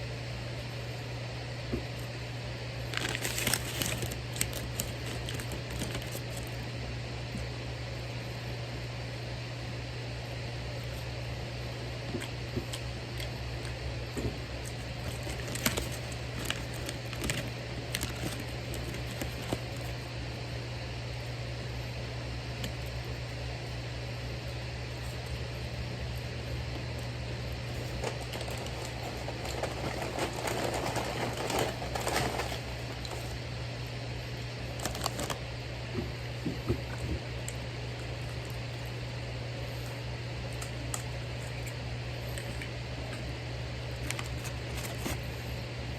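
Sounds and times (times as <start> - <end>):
steady low hum: 0.0 - 45.9
rustling: 2.9 - 6.6, 14.6 - 20.0, 27.8 - 33.4.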